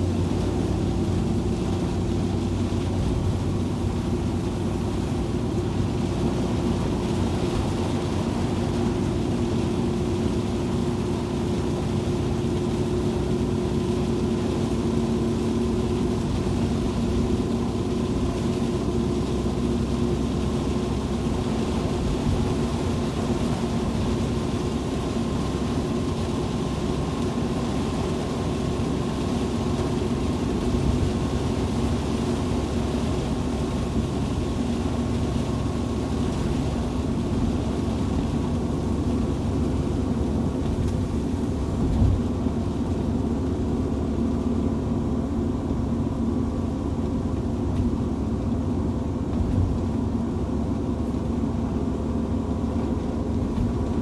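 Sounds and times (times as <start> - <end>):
vehicle driving on highway: 0.0 - 54.0
vehicle bump: 40.5 - 42.6, 49.2 - 50.1.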